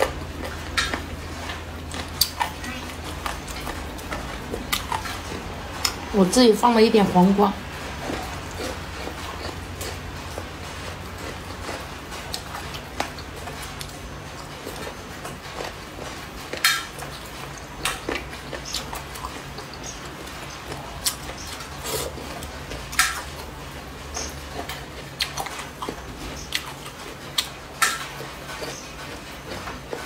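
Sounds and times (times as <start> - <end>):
crunching and wet clicks: 0.0 - 6.0, 24.2 - 30.0.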